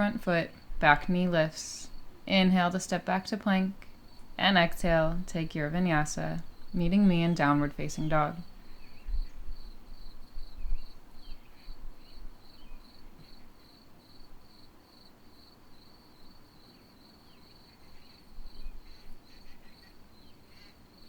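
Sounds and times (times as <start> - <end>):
cricket chirping: 8.5 - 21.0.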